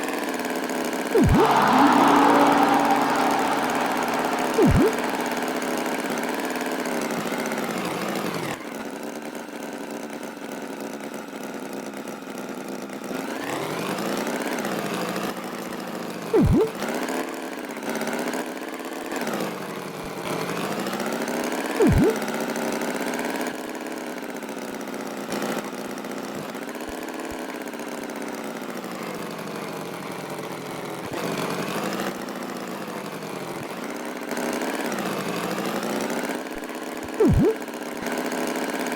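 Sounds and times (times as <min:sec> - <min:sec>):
loud swooping noises: 0:01.2 - 0:06.2, 0:16.4 - 0:16.8, 0:21.8 - 0:22.2, 0:37.2 - 0:37.6.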